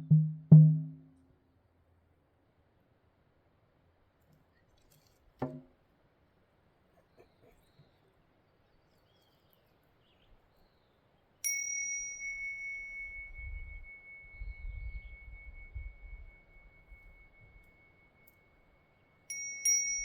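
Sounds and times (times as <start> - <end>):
small metal bell ringing: 11.4 - 20.0.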